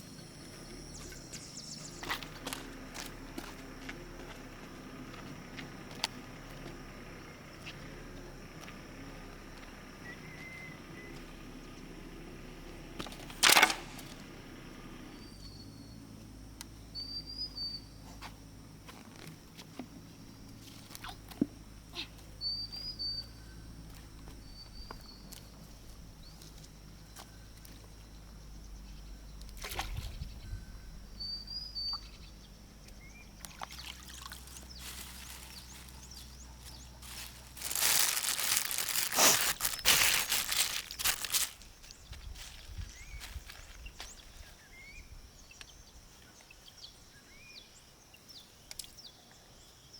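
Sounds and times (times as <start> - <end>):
bird chirping: 0.5 - 2.4, 16.8 - 18.0, 22.4 - 23.7, 30.2 - 49.9
small splashes and knocks: 29.4 - 30.3, 33.4 - 35.9
water splashing and sloshing: 33.4 - 36.0.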